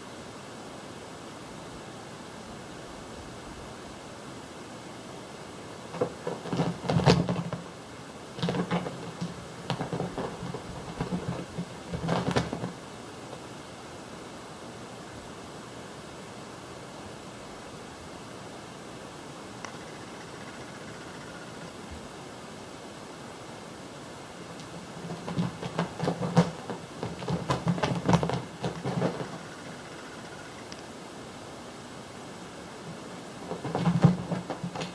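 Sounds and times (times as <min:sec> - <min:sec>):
steady hiss: 0:00.0 - 0:34.9
cat's paws scrambling on hard floor: 0:08.4 - 0:12.8, 0:24.6 - 0:29.5, 0:33.4 - 0:34.9
cat paws pattering on floor: 0:33.4 - 0:34.9.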